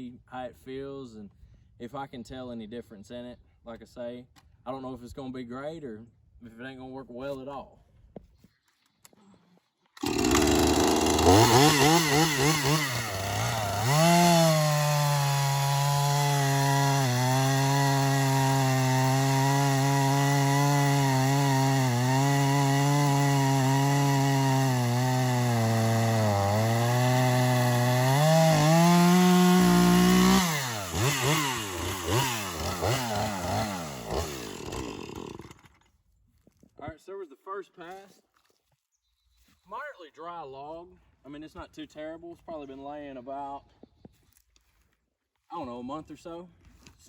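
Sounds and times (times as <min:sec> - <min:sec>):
chainsaw cutting log: 0:10.0 - 0:35.9.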